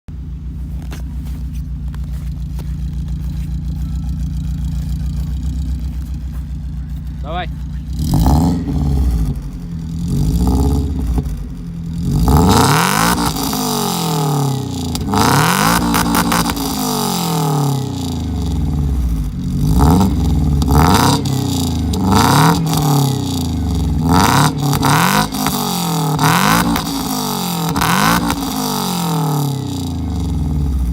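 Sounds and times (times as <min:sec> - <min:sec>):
car engine revving: 0:00.1 - 0:30.9.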